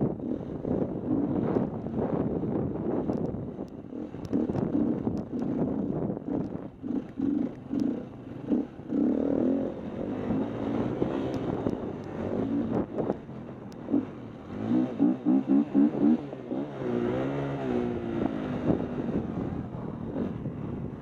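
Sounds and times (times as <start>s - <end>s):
dirt bike engine revving: 6.3s - 13.1s, 13.8s - 19.2s.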